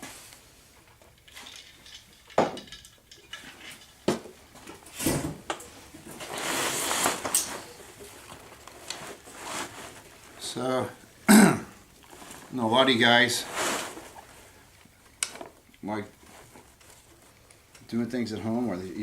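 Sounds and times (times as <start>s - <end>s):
rustle: 0.0s - 11.3s, 11.9s - 19.0s.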